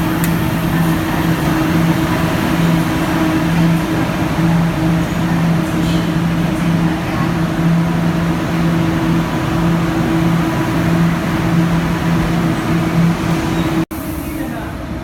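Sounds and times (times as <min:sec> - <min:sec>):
metro train running: 0:00.0 - 0:15.0.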